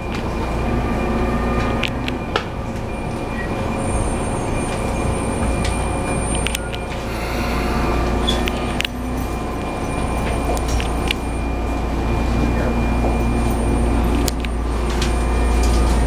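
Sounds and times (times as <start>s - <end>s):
train interior rumble: 0.0s - 16.0s.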